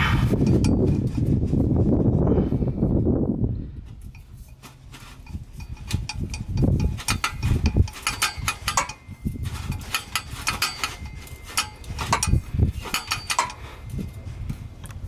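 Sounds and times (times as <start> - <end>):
faint metallic ring: 0.4 - 1.4, 4.0 - 14.7
metallic clicks and clinks of tools: 4.1 - 15.0.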